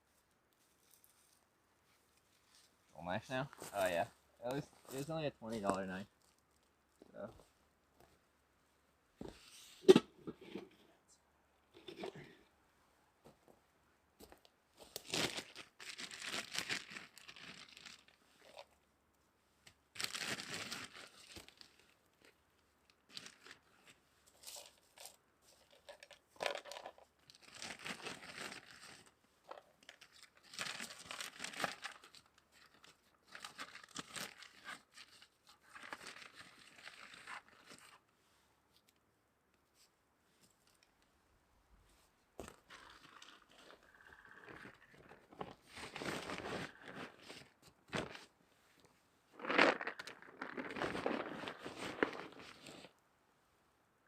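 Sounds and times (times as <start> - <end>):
packaging crinkling: 15.0 - 18.6, 25.7 - 29.1, 29.8 - 37.9, 49.4 - 52.9.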